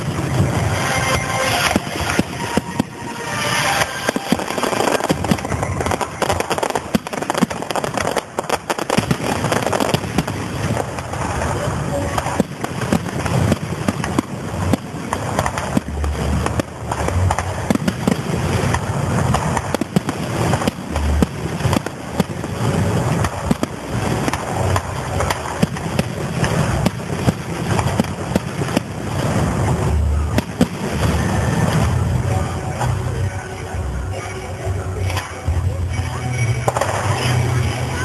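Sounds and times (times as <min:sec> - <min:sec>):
fireworks crackling and banging: 0:00.0 - 0:38.0
deep booms of bursting shells: 0:03.9 - 0:11.5, 0:12.2 - 0:31.8.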